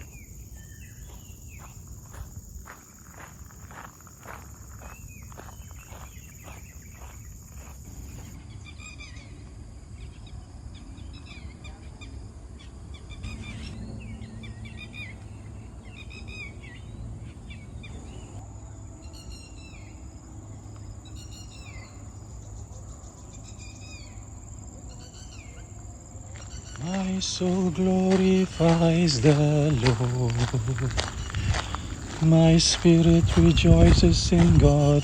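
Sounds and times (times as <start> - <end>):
bird chirping calls: 0.0 - 9.4, 10.0 - 18.4, 24.9 - 35.0
high insect drone: 0.0 - 35.0
footsteps: 1.0 - 8.4, 26.3 - 35.0
outdoor rumble: 6.7 - 35.0.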